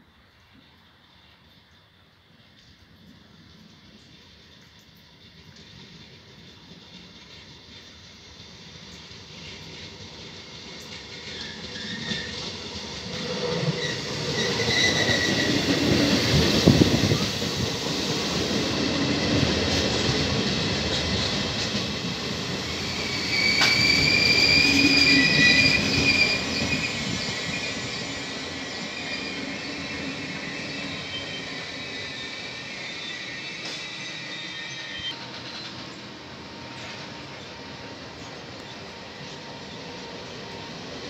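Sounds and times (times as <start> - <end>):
train wheels on rails: 0.2 - 41.0
high squeal: 11.2 - 12.5, 13.2 - 19.8, 22.0 - 41.0.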